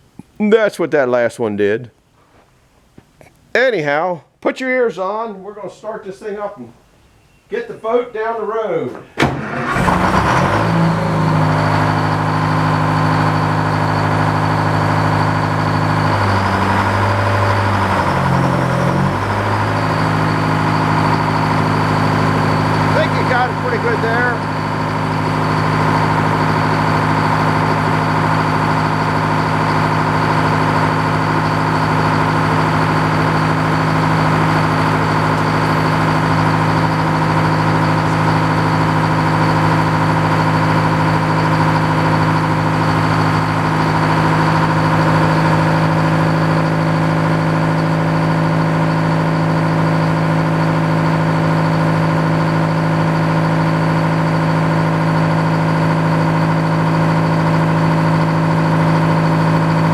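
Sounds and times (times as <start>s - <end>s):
sawmill gasoline engine running: 9.2s - 59.9s
steady high whine: 10.4s - 48.3s.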